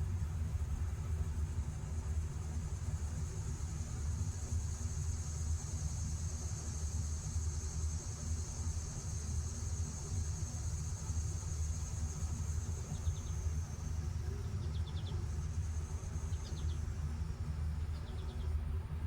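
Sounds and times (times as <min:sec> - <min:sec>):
insect trill: 0:03.8 - 0:18.5.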